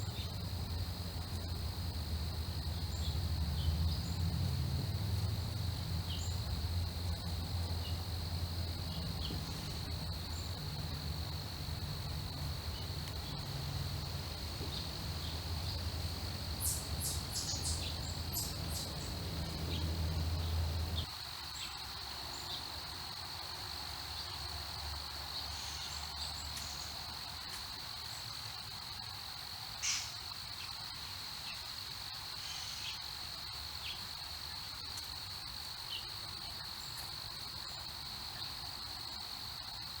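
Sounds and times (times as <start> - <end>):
crickets trilling: 0.0 - 40.0
low rumble: 0.4 - 21.1.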